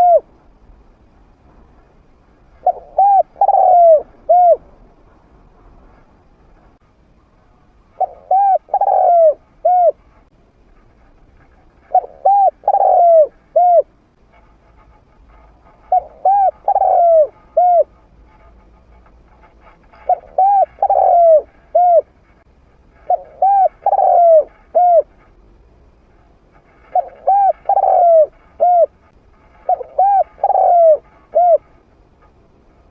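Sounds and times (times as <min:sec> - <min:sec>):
dove cooing: 0:00.0 - 0:00.3, 0:02.6 - 0:04.6, 0:07.9 - 0:10.0, 0:11.8 - 0:13.9, 0:15.8 - 0:17.9, 0:20.0 - 0:22.4, 0:23.0 - 0:25.2, 0:26.7 - 0:31.8.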